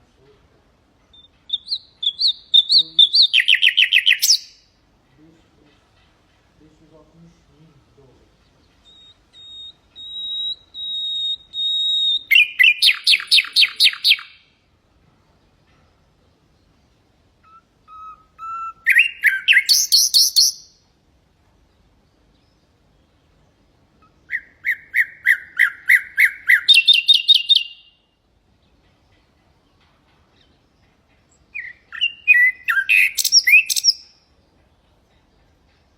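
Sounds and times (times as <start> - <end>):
nightingale singing: 0.0 - 14.7, 15.4 - 35.9.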